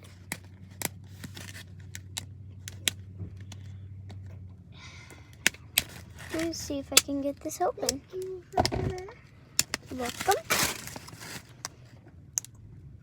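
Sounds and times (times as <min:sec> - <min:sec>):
packaging clicks and crinkles: 0:00.0 - 0:04.2, 0:05.3 - 0:08.3, 0:09.6 - 0:12.5
steady low hum: 0:00.0 - 0:13.0.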